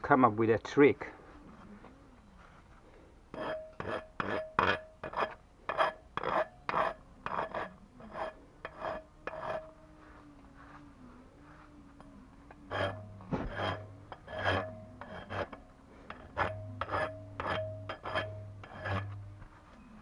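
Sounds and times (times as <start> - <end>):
file rasping on workpiece: 3.3 - 9.7, 12.7 - 19.2.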